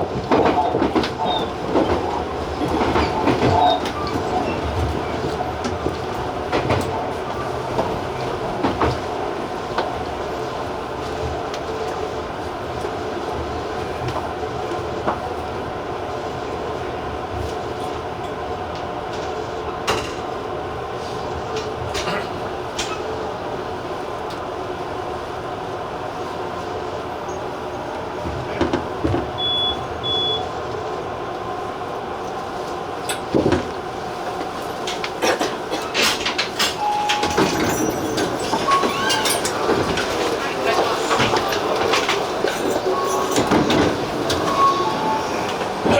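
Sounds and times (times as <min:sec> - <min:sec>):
wheels clicking and knocking on rails: 0:00.0 - 0:15.7, 0:32.3 - 0:45.9
electric train rumbling: 0:00.0 - 0:45.9
wheel clicks over rail joints: 0:34.8 - 0:45.9.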